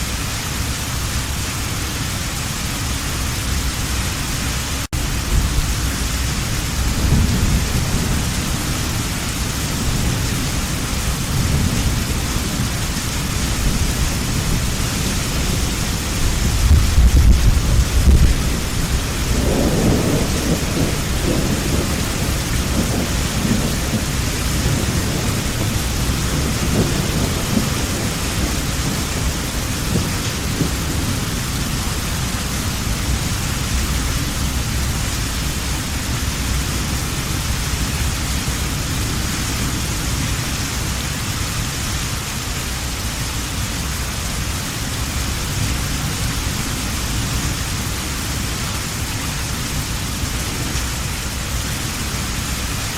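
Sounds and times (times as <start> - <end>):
heavy rain falling: 0.0 - 52.9
rolling thunder: 4.9 - 41.0.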